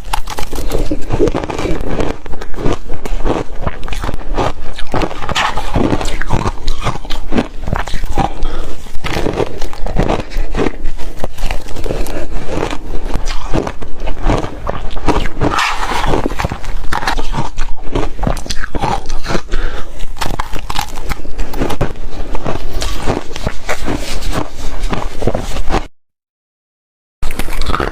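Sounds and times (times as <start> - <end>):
chewing crunchy ice: 0.0 - 25.9, 27.2 - 27.9.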